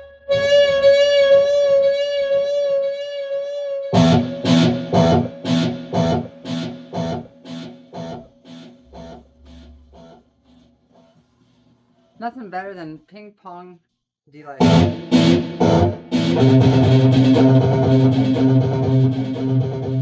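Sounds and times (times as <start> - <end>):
electric guitar with delay: 0.0 - 10.2, 14.6 - 20.0.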